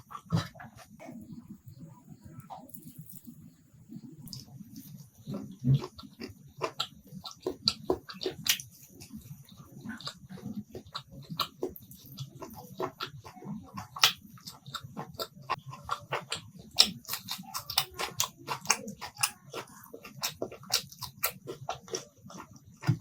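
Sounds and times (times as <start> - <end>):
chewing with mouth clicks: 0.0 - 23.0.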